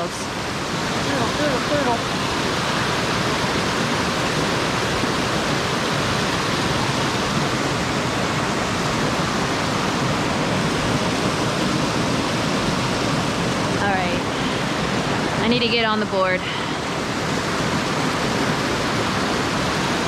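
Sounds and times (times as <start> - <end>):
fast-flowing river water: 0.0 - 20.0.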